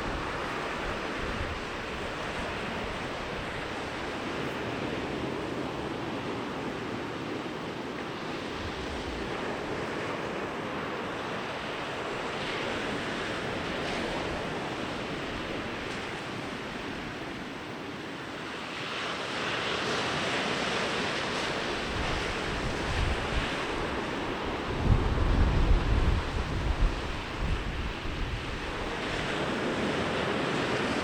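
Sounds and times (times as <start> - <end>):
wind buffeting microphone: 0.0 - 10.7, 21.3 - 31.0
ocean waves breaking: 0.0 - 31.0.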